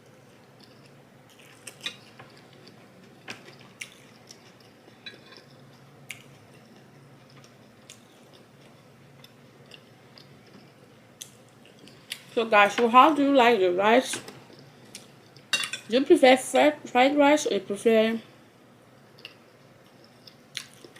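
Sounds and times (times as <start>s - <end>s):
person chewing: 0.4s - 12.4s, 19.0s - 20.9s.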